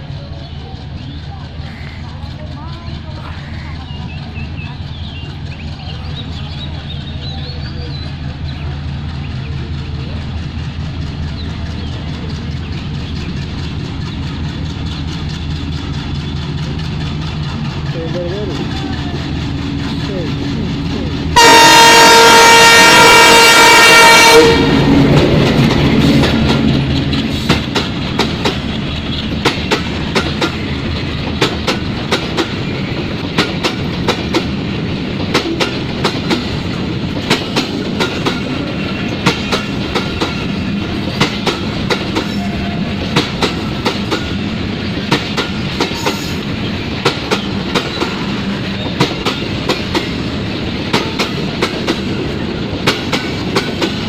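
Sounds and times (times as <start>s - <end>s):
train rumble: 0.0s - 54.0s
train wheels clickety-clack: 0.0s - 54.0s
locomotive horn: 21.4s - 25.2s.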